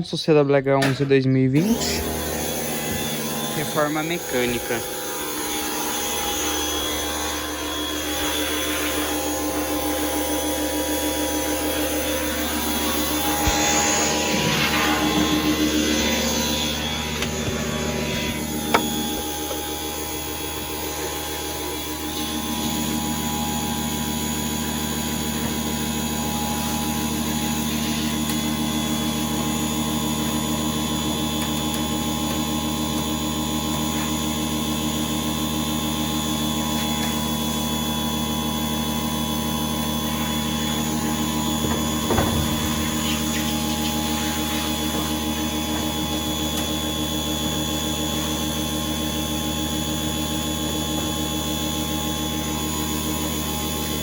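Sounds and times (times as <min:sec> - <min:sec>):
motor humming: 0:00.6 - 0:54.0
short knock: 0:41.7 - 0:43.2.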